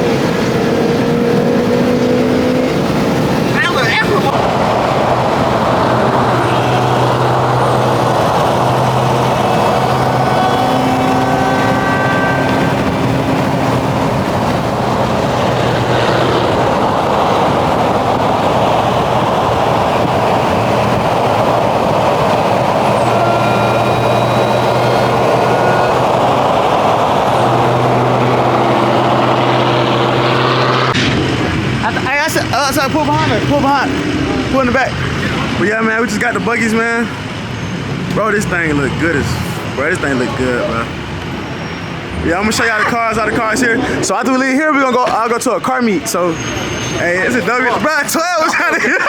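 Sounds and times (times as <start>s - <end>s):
low engine hum: 0.0s - 31.9s
vehicle road and engine noise: 0.0s - 49.0s.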